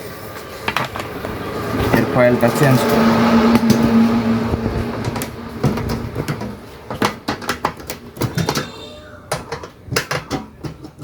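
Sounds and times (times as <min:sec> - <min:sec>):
rice cooker parts clicking: 0:06.3 - 0:11.0.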